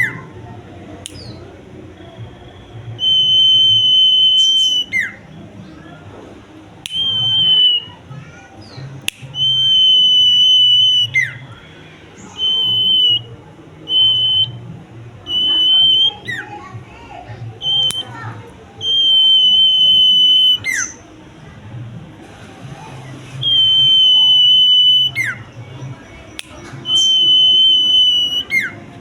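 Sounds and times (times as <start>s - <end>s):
bird whistling high notes: 2.1s - 5.4s, 6.9s - 8.0s, 9.3s - 11.6s, 12.2s - 13.3s, 13.9s - 14.6s, 15.2s - 16.5s, 17.6s - 18.2s, 18.8s - 21.0s, 23.4s - 28.8s.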